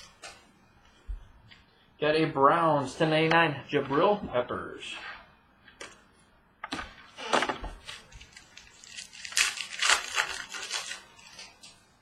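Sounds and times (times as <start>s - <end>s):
foil pack crinkling: 7.8s - 11.8s.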